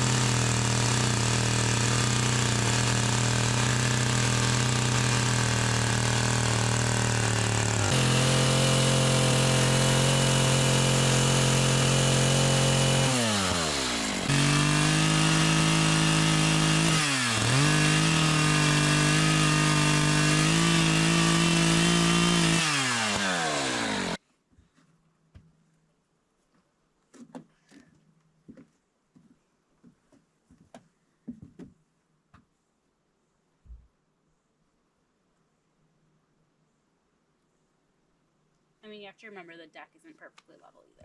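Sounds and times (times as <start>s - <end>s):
small engine running at high speed: 0.0s - 24.2s.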